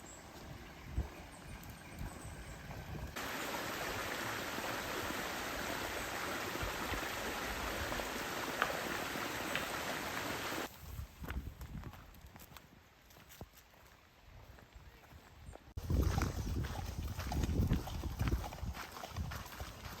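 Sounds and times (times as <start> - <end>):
running water rushing: 0.0 - 10.7.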